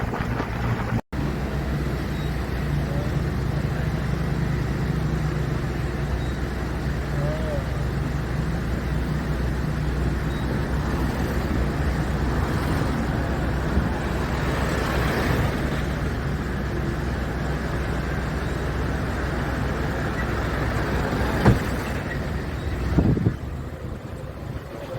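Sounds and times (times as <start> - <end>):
vehicle engine and road rumble: 0.0 - 24.9.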